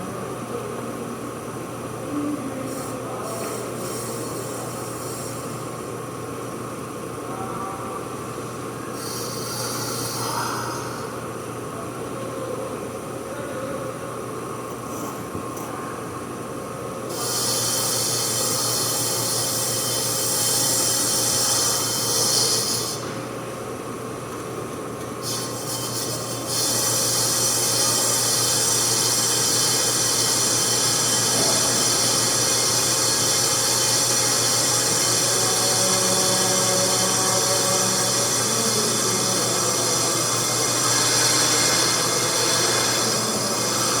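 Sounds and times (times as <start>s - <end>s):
high-pitched metal-cutting scrape: 2.6s - 5.8s, 8.9s - 11.2s, 17.1s - 23.2s, 25.2s - 44.0s.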